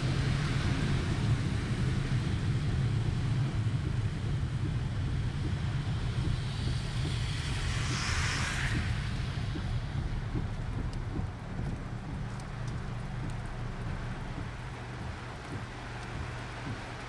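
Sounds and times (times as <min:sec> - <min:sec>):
car interior rumble: 0:00.0 - 0:17.0
rushing hiss: 0:05.9 - 0:17.0.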